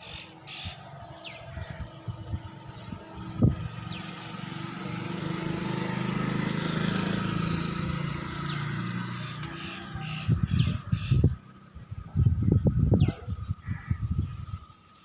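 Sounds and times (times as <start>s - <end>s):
tractor diesel engine running: 0.0s - 11.3s.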